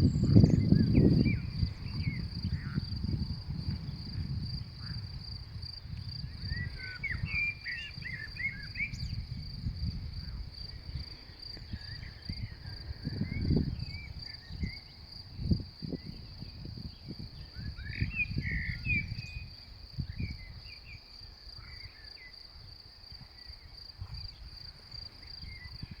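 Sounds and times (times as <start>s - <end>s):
birds twittering: 0.0s - 3.0s, 6.3s - 9.3s, 10.2s - 15.0s, 16.0s - 22.4s.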